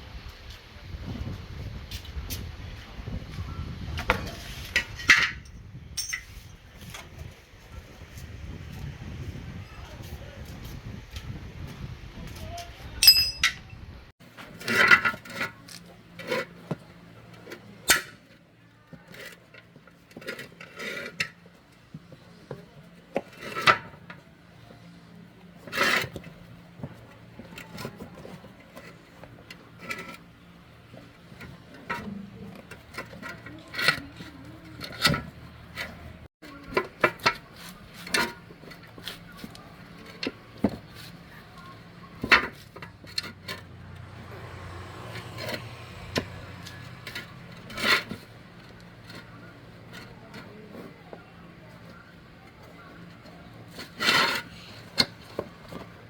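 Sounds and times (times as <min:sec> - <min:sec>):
metal tools clinking and scraping: 0:04.7 - 0:07.1, 0:13.0 - 0:13.7.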